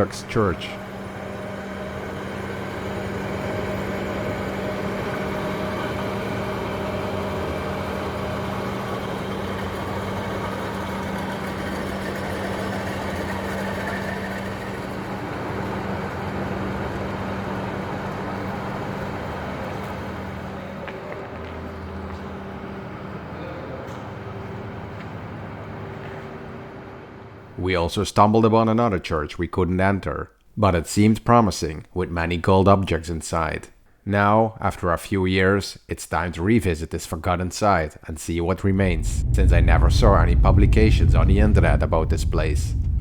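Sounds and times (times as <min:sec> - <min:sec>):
vehicle engine drone: 0:00.0 - 0:26.9, 0:38.6 - 0:43.0
road noise: 0:38.6 - 0:43.0.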